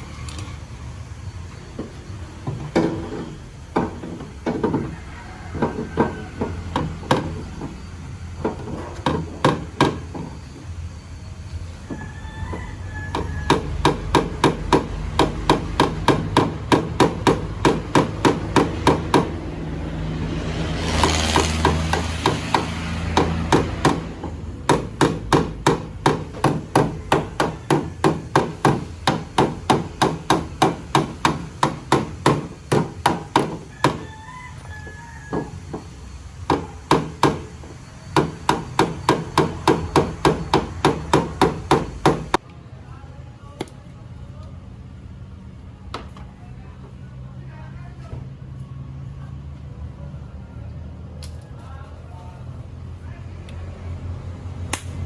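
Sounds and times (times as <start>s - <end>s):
hammer striking: 5.6s - 10.4s, 13.1s - 19.5s, 21.0s - 34.1s, 35.3s - 42.4s, 54.7s - 55.0s.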